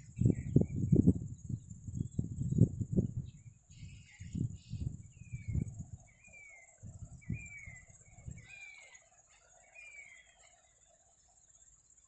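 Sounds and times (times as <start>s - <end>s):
wind rumble on microphone: 0.0s - 8.9s
high insect drone: 0.0s - 12.0s.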